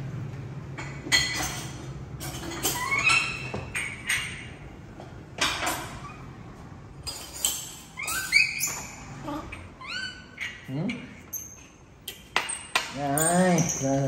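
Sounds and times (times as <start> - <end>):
knocks and clinks: 0.7 - 6.0, 7.0 - 8.2, 11.3 - 14.0
monkey squeaky calls: 7.9 - 11.7.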